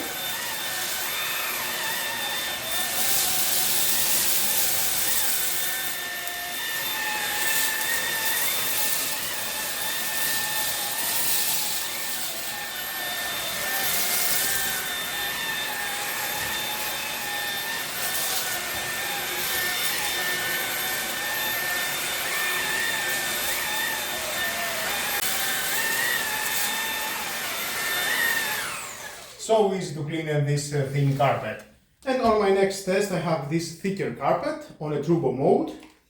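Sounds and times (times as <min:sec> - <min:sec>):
stick vacuum running on carpet: 0:00.0 - 0:29.5.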